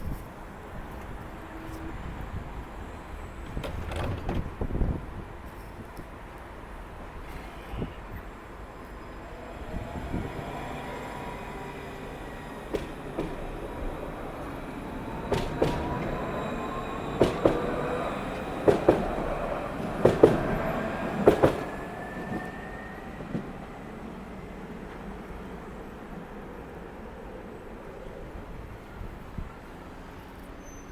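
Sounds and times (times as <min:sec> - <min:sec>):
wheels clacking over rail joints: 0:03.2 - 0:05.0, 0:10.4 - 0:22.5
tram motor whine rising: 0:08.5 - 0:25.8.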